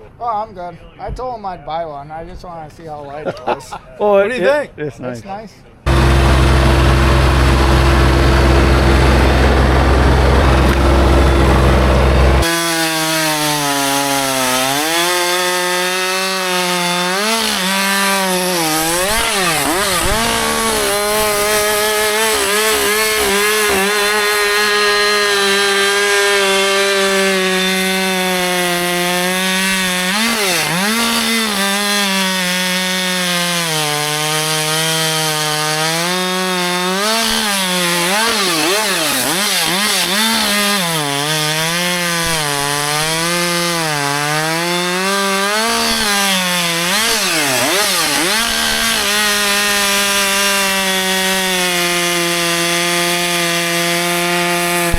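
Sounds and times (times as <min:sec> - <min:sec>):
loud low rumble: 0:05.9 - 0:12.4
chainsaw cutting wood: 0:05.9 - 0:54.9.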